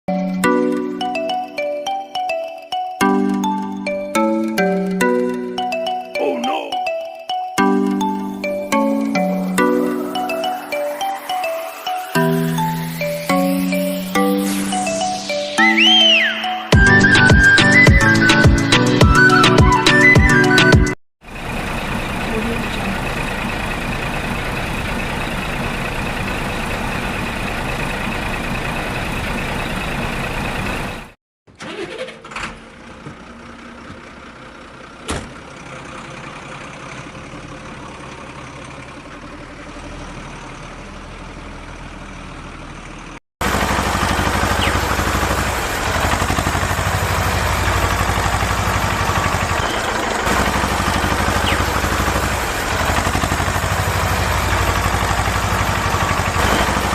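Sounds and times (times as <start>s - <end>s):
vehicle engine running: 16.8s - 31.2s, 32.5s - 56.9s.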